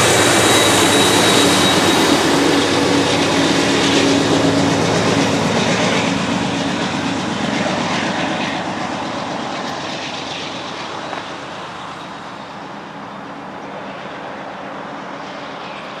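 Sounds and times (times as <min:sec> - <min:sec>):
diesel locomotive drone: 0:00.0 - 0:16.0
steel wheels rumbling on rail: 0:00.0 - 0:16.0.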